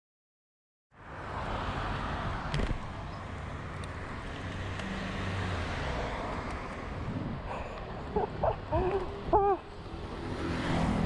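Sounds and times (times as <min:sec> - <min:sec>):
road traffic: 0:00.9 - 0:11.0
wind on microphone: 0:06.9 - 0:07.7.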